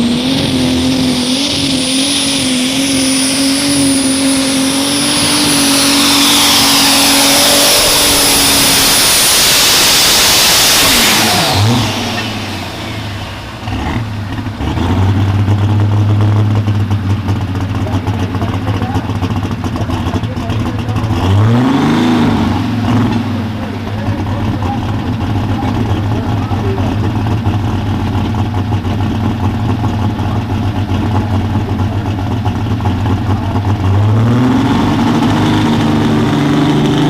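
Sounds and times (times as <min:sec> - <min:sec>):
high steady whine: 0:00.0 - 0:14.5
diesel tractor engine revving: 0:00.0 - 0:37.0.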